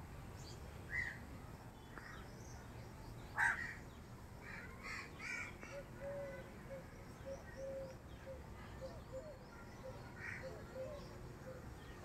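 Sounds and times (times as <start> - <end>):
birds calling: 3.2 - 12.0.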